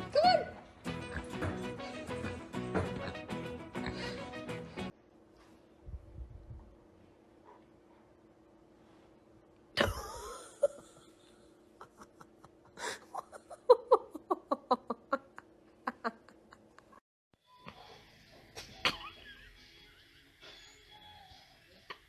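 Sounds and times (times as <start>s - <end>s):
person laughing: 9.8s - 17.0s, 18.6s - 19.6s.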